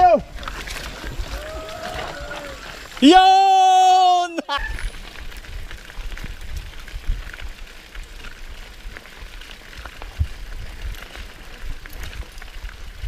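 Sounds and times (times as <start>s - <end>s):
tyres crackling on grit: 0.0s - 13.0s
bike clicks and rattles: 4.6s - 13.0s.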